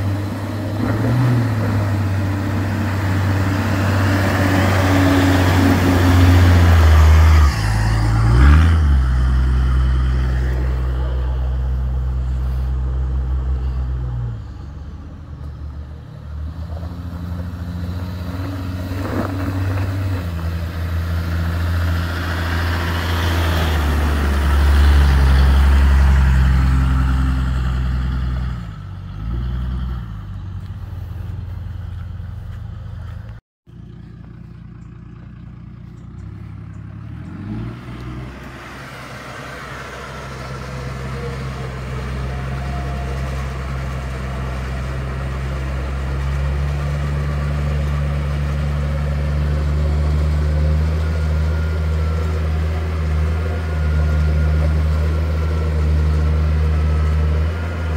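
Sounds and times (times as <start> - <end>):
car engine running: 30.4 - 57.4.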